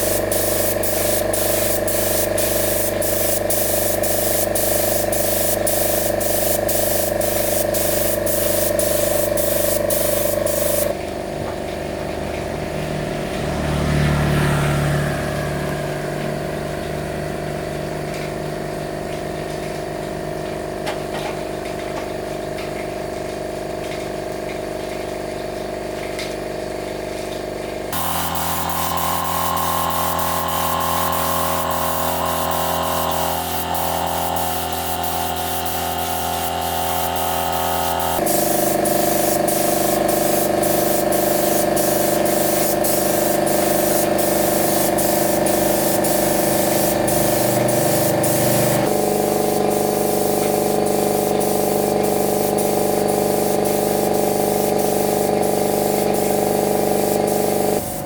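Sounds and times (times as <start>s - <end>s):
spraying hiss: 0.0s - 10.9s, 28.0s - 58.0s
machine hum: 28.0s - 42.0s.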